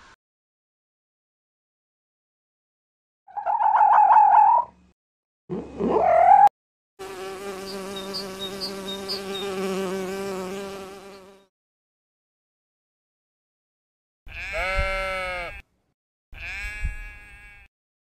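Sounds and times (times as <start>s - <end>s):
bee buzzing: 7.0s - 11.5s.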